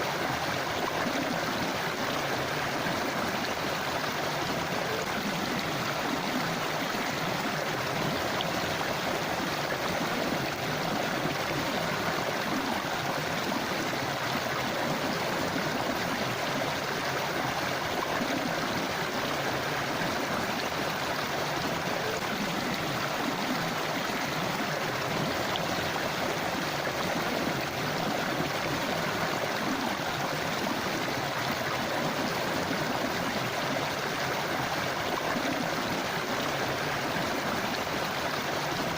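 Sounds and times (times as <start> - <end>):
river gurgling over rocks: 0.0 - 38.9.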